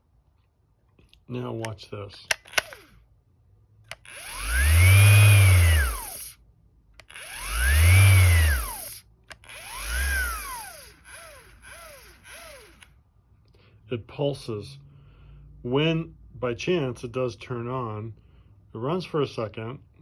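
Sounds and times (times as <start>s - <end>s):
sander motor pulsing: 2.3s - 2.9s, 3.9s - 6.4s, 7.0s - 12.9s.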